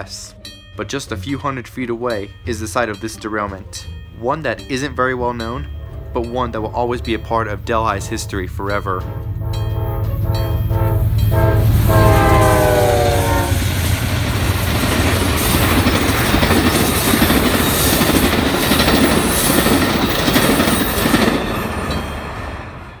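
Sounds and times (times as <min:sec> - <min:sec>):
train cars rumbling over rails: 0:00.0 - 0:23.0
train horn: 0:08.0 - 0:14.2.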